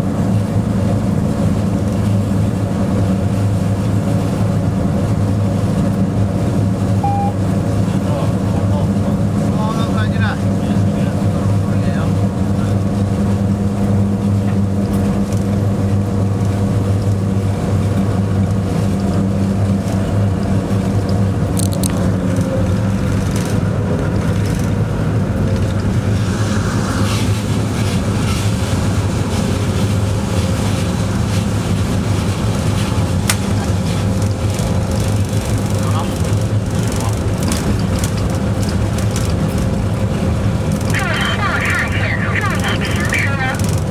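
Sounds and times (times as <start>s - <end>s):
locomotive cab hum and rumble: 0.0s - 43.9s
sharp clicks: 42.4s - 43.9s.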